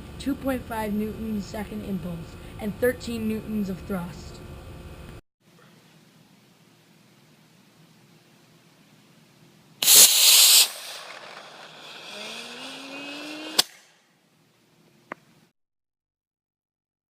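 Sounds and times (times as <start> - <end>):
rocket engine hissing: 9.8 - 13.8
sharp pop: 9.8 - 14.0
faint rising whine: 10.6 - 13.6.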